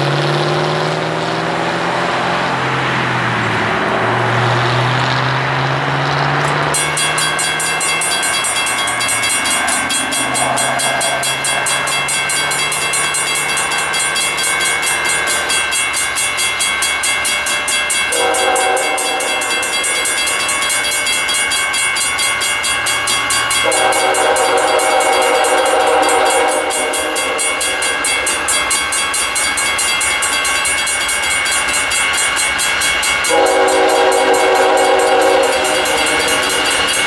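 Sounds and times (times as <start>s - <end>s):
diesel locomotives droning: 0.0s - 37.0s
locomotive air horn: 9.9s - 11.7s, 18.1s - 19.9s, 23.6s - 28.0s, 33.3s - 37.0s.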